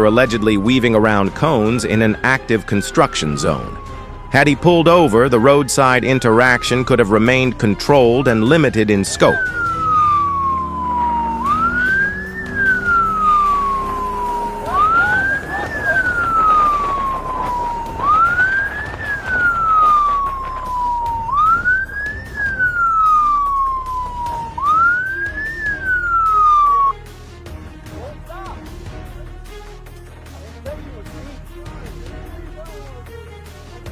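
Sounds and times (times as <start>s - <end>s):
police siren wailing: 0.0s - 27.0s
steady road noise: 0.0s - 33.9s.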